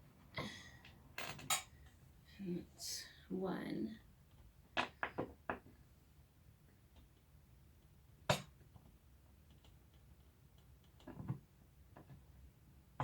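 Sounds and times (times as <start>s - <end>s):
chair parts clicking and knocking: 1.2s - 1.8s, 4.3s - 5.7s, 6.9s - 12.3s.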